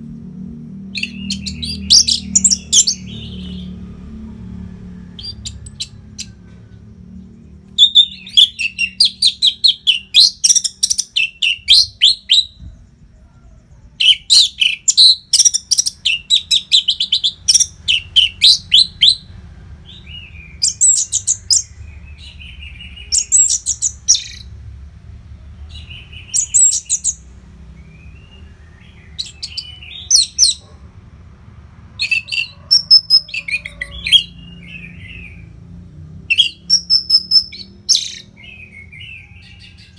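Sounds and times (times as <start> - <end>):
bird singing rapid high notes: 0.8 - 3.9, 7.7 - 12.6, 14.0 - 19.2, 25.8 - 30.7, 36.3 - 39.2.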